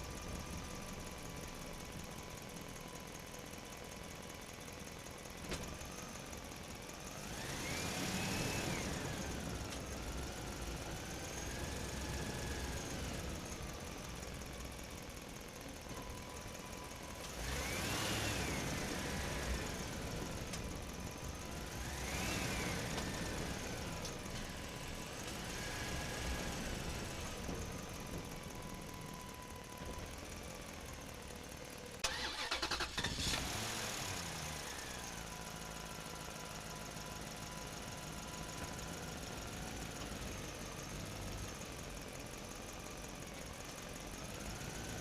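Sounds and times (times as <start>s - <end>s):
vehicle engine revving: 7.2s - 9.6s, 17.2s - 20.3s, 21.4s - 24.0s, 32.0s - 35.0s.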